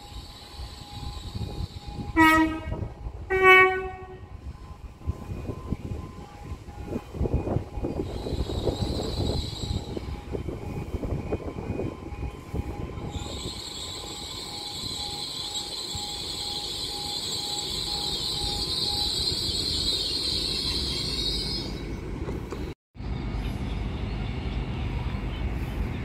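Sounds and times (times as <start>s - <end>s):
high-pitched brake squeal: 0.0s - 2.6s, 7.8s - 10.2s, 12.6s - 22.0s
train wheels rumbling over rails: 3.9s - 26.0s.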